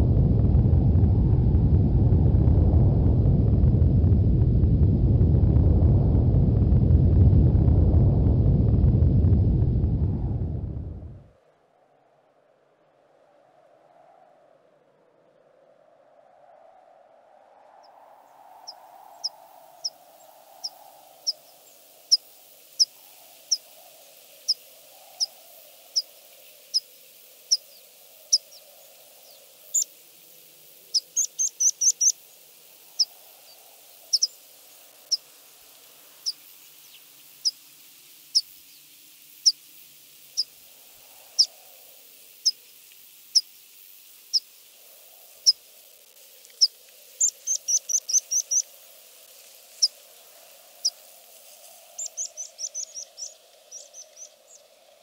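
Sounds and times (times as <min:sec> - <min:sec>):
faint low wavering hum: 0:00.0 - 0:11.3
small bird chirping: 0:24.4 - 0:29.9, 0:30.8 - 0:32.2, 0:33.0 - 0:34.4, 0:36.2 - 0:37.7, 0:38.3 - 0:39.6, 0:40.3 - 0:40.5, 0:41.3 - 0:41.6, 0:42.4 - 0:42.7, 0:44.3 - 0:44.5, 0:45.4 - 0:45.6, 0:46.5 - 0:48.7, 0:52.0 - 0:54.6.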